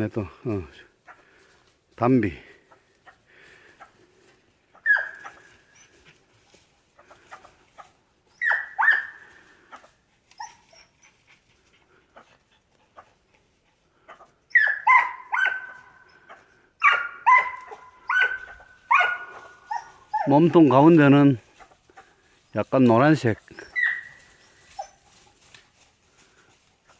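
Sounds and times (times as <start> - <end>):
dog yelping: 4.7 - 6.2, 7.0 - 11.3, 14.1 - 20.5, 23.5 - 25.4.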